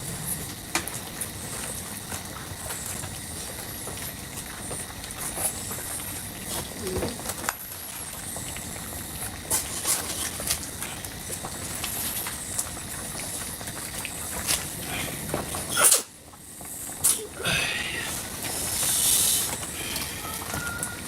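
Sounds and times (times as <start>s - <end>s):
steady hiss: 7.9s - 21.0s.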